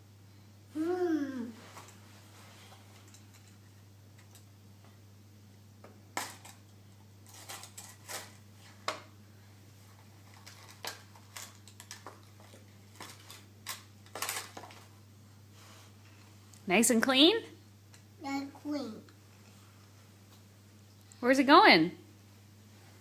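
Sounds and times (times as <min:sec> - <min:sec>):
plastic toys clicking and knocking: 0:06.2 - 0:06.6, 0:10.4 - 0:14.9.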